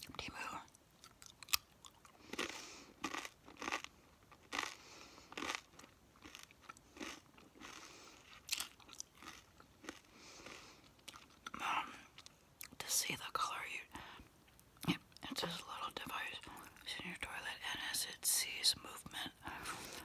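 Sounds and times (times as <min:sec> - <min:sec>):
crunchy food chewing: 0:01.0 - 0:12.8.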